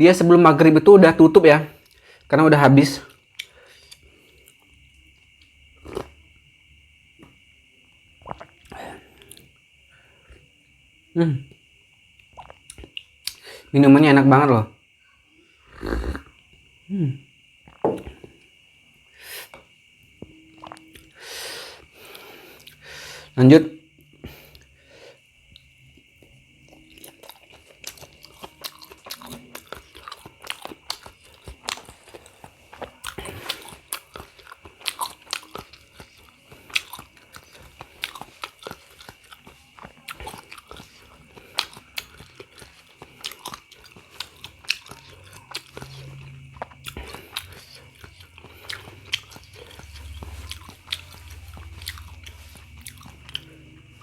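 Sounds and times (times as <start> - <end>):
person chewing wet mouth sounds: 3.1 - 4.7, 5.4 - 6.2, 8.2 - 9.5, 12.2 - 13.6, 20.2 - 21.2, 25.5 - 54.0.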